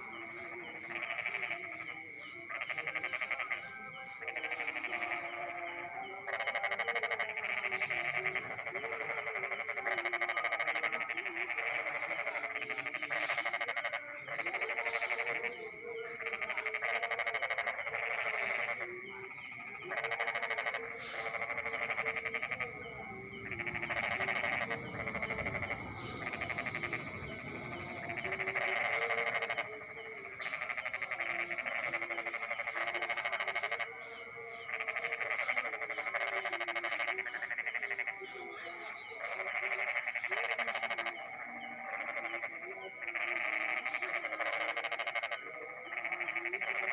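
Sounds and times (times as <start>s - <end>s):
frogs calling: 0.0s - 46.9s.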